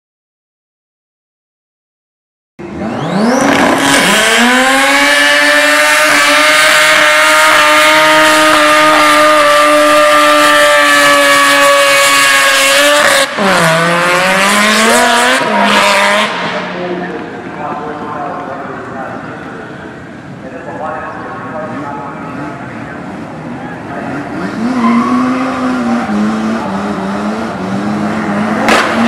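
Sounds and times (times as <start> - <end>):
car engine revving: 2.6 - 20.4, 21.3 - 29.0.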